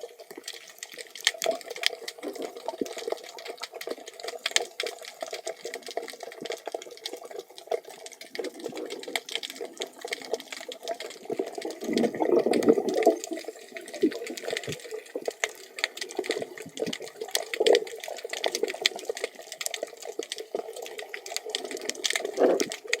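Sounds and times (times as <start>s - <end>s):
muffled water noise: 0.0s - 23.0s
crackle of short clicks: 14.0s - 23.0s.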